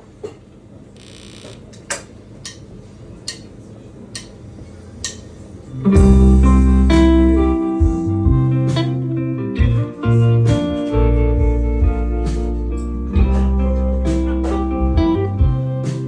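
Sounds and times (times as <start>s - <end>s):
band playing loud: 5.8s - 16.0s
heavy bass: 5.8s - 16.0s
sustained guitar chords: 5.8s - 16.0s.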